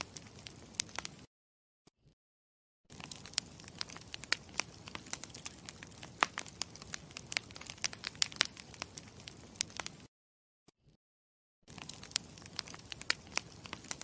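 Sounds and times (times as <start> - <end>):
campfire crackling: 0.0 - 1.3, 2.9 - 10.1, 11.7 - 14.0.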